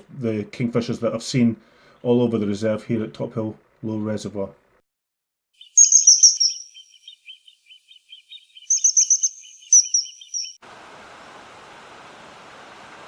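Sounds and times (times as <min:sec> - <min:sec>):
birds chirping: 0:05.6 - 0:10.6
rapid shrill bird notes: 0:05.6 - 0:10.6.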